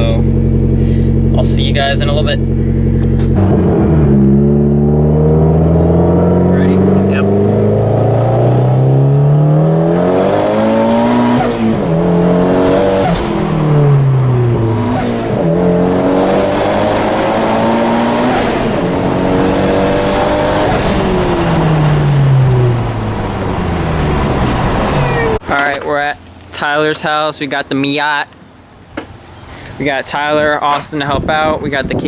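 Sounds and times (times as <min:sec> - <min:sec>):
car engine accelerating: 0:00.0 - 0:25.4.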